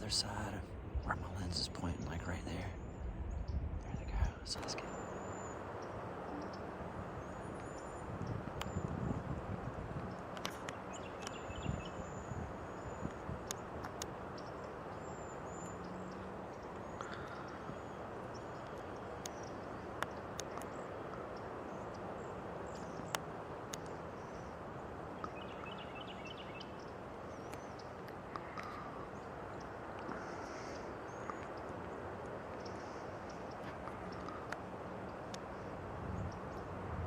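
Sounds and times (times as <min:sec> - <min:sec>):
steady background hiss: 0:00.0 - 0:02.8.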